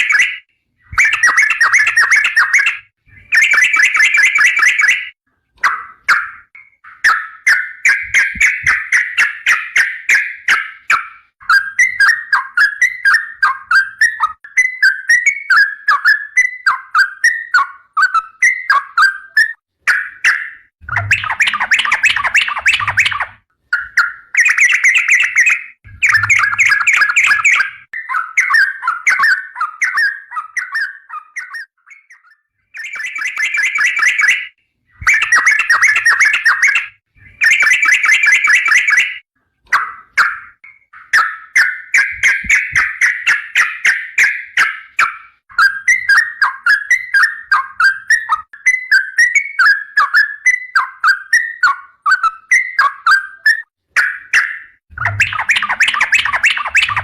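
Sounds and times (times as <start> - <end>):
bulbul singing bubbly notes: 20.8 - 23.3, 25.9 - 27.9, 54.9 - 57.0.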